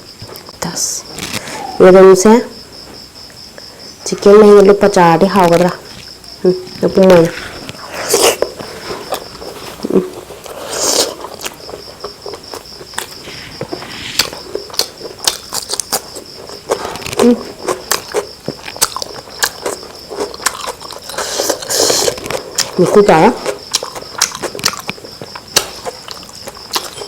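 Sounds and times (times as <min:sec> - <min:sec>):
chewing food: 0:05.8 - 0:27.0.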